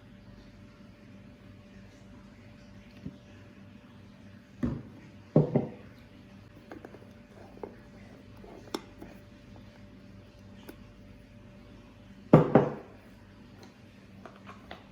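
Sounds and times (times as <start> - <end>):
faint steady hum: 0.0 - 14.9
kitchen items knocking: 5.4 - 5.8.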